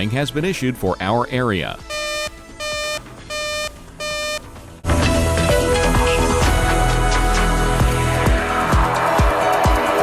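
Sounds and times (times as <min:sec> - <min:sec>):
electronic alert beep: 0:01.9 - 0:04.5
loud music with a beat: 0:07.8 - 0:10.0.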